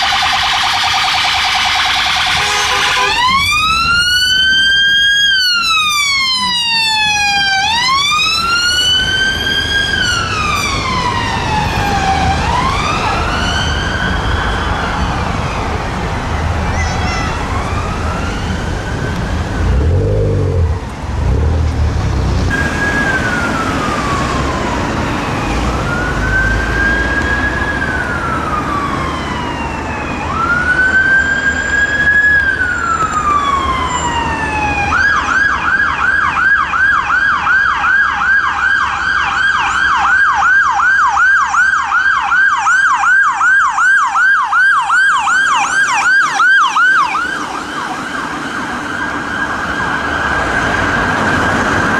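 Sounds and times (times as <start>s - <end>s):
siren fast yelp: 0.0s - 8.8s
ambulance siren wailing: 0.0s - 21.4s, 22.5s - 51.9s
low traffic rumble: 0.0s - 51.9s.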